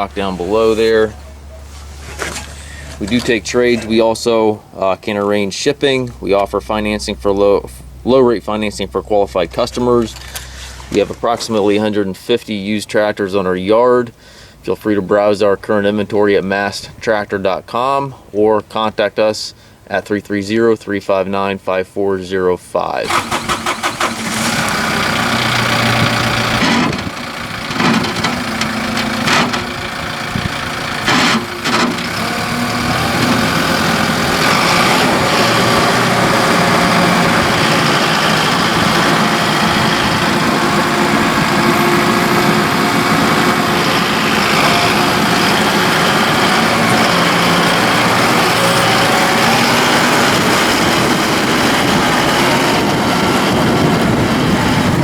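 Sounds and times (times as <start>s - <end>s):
tractor diesel engine running: 23.0s - 55.0s.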